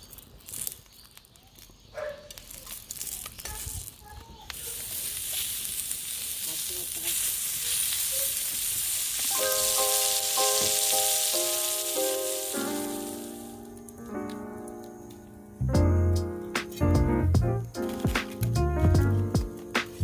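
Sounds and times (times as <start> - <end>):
food sizzling on griddle: 0.0 - 13.9, 19.4 - 20.0
simple melody of held notes: 9.3 - 19.8.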